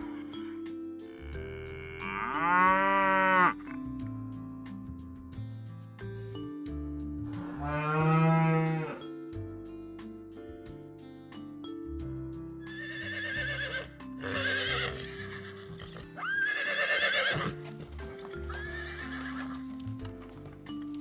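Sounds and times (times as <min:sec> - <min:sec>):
background music with sustained tones: 0:00.0 - 0:21.0
horse whinnying: 0:12.6 - 0:17.6, 0:18.4 - 0:19.7.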